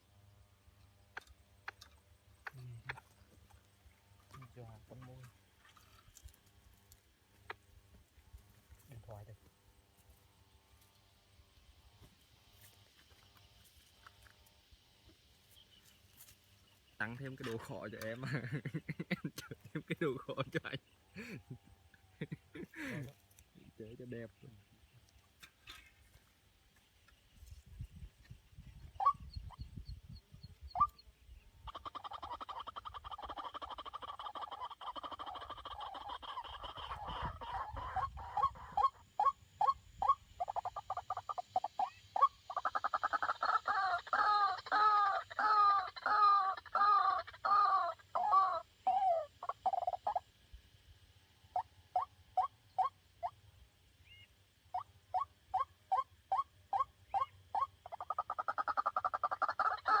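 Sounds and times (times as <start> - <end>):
waterhen croaking calls: 31.6 - 50.3, 51.5 - 53.4, 54.0 - 60.0.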